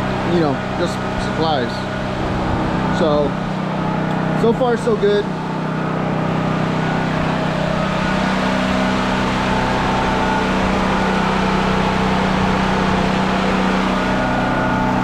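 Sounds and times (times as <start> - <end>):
portable generator running: 0.0 - 15.0.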